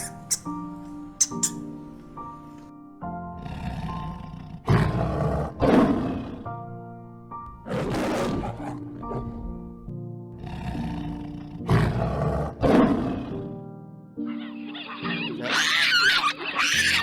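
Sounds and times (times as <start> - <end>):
animal giving harsh calls: 0.0 - 0.5, 1.2 - 1.6, 14.6 - 17.0
background music with held tones: 0.0 - 4.8, 13.2 - 17.0.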